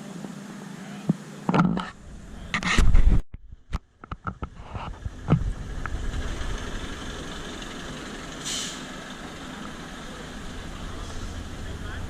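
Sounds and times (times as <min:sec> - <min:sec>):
truck engine running: 0:02.0 - 0:02.6, 0:04.9 - 0:12.0
air hiss: 0:08.4 - 0:12.0.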